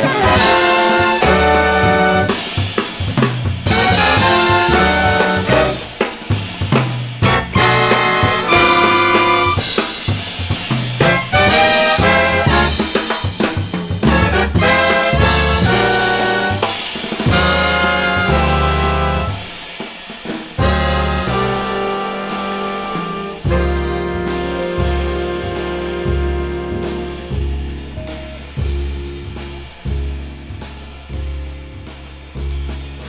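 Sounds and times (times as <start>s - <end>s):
brass section playing chords: 0.0s - 2.8s, 3.6s - 6.2s, 7.2s - 10.0s, 11.0s - 13.2s, 14.0s - 19.6s, 20.6s - 27.9s
drum kit: 0.0s - 33.0s.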